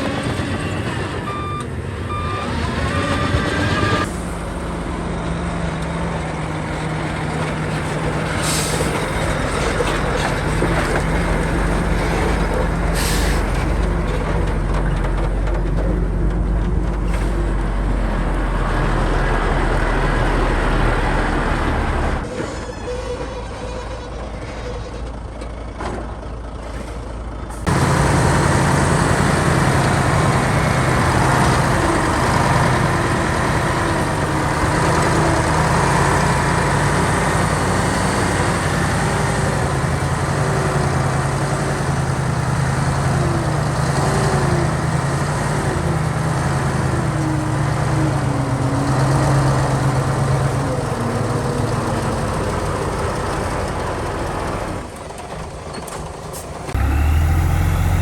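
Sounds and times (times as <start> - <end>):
heavy diesel machinery engine: 0.0 - 58.0.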